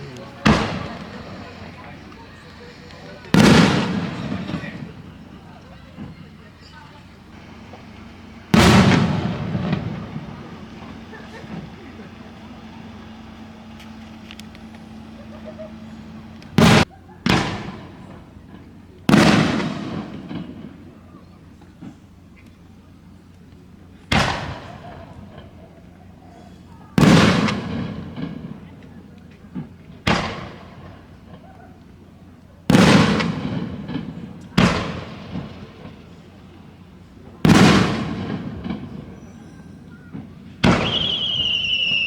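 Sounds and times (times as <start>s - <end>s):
rumbling echo: 0.0s - 21.3s
firework booms: 0.0s - 22.2s, 24.0s - 42.0s.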